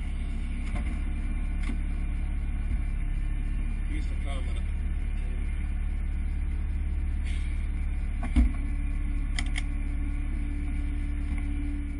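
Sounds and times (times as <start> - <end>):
car engine idling: 0.0 - 11.9
thump: 8.2 - 8.6.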